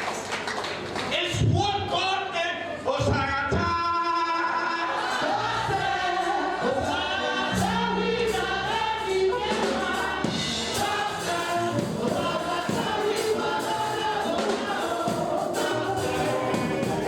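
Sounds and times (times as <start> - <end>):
choir singing gospel music: 4.4 - 17.0
musical accompaniment: 5.0 - 17.0.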